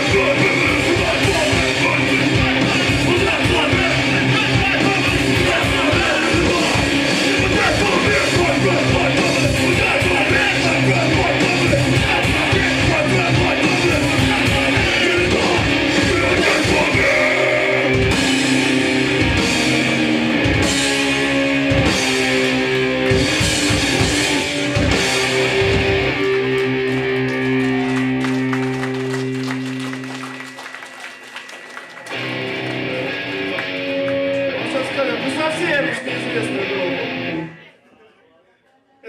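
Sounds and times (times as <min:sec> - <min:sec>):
drum kit: 0:00.0 - 0:30.0
bass guitar: 0:00.0 - 0:30.5, 0:32.0 - 0:37.6
distorted electric guitars: 0:00.0 - 0:30.7, 0:31.4 - 0:37.7.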